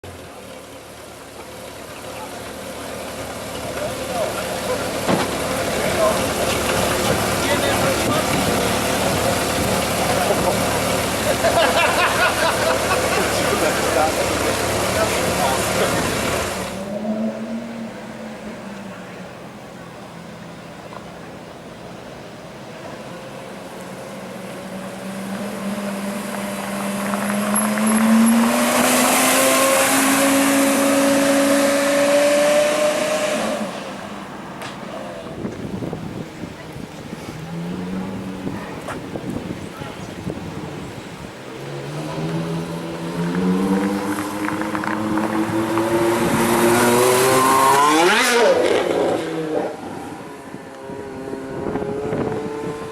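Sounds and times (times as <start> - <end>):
sports car engine accelerating past: 3.4 - 20.6, 23.0 - 35.4, 41.6 - 52.9.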